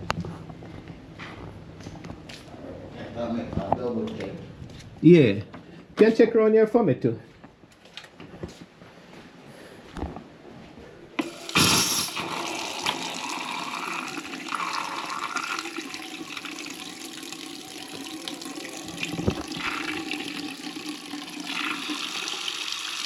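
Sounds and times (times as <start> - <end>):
water running from a tap: 11.2 - 23.0.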